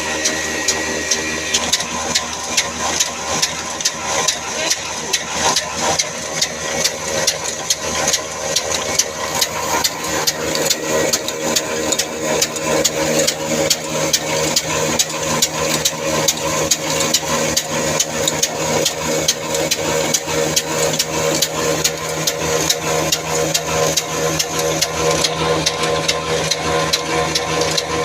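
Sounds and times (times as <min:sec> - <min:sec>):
diesel engine knocking: 0:00.0 - 0:28.0.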